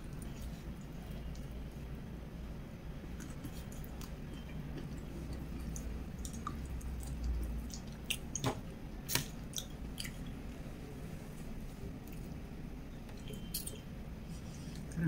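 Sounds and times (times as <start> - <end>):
person chewing food: 3.0 - 10.6.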